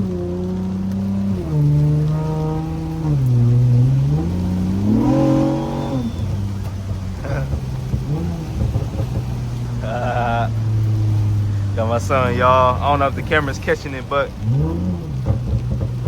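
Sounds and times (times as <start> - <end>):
car engine accelerating: 0.0 - 16.0
person speaking: 11.6 - 14.3.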